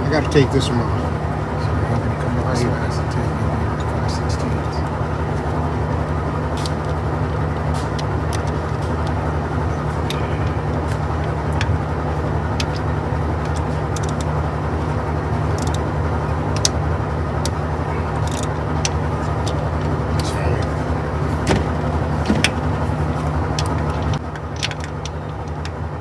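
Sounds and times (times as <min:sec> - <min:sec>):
low hum: 0:00.0 - 0:26.0
metallic tool clicks and taps: 0:13.4 - 0:14.3, 0:15.5 - 0:15.8, 0:18.2 - 0:19.6.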